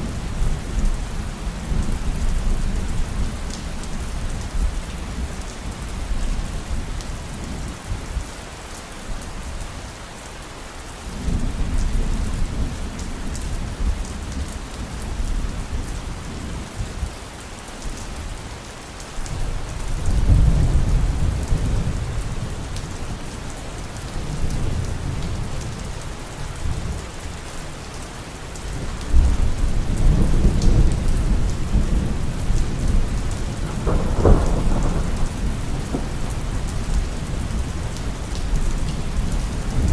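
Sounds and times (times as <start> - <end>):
heavy rain: 0.0 - 39.9
rolling thunder: 29.1 - 39.9
sharp thunder crack: 33.5 - 36.2.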